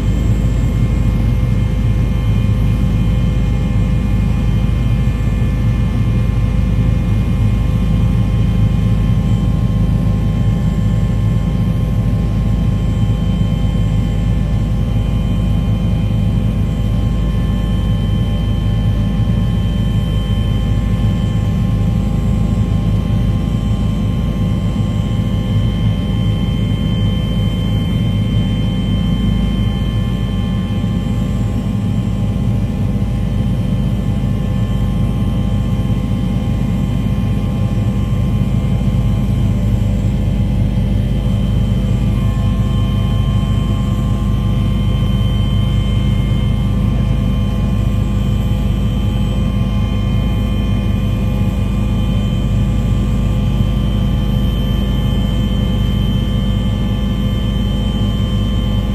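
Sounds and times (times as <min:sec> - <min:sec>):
aircraft engine rumbling: 0:00.0 - 0:58.9.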